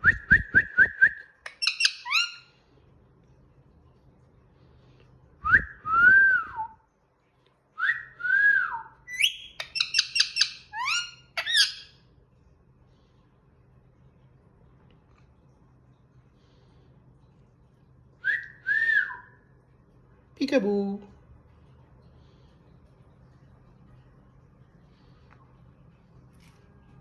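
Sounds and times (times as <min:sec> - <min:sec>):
parakeet whistling: 0:01.5 - 0:02.4, 0:09.1 - 0:11.9.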